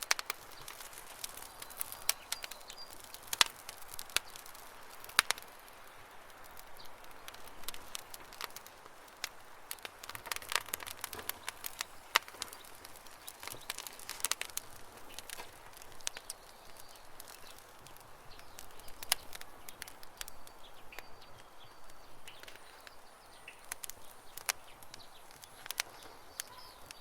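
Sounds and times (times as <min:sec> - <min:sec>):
campfire crackling and popping: 0:00.0 - 0:27.0
faint bird chirps: 0:15.2 - 0:27.0.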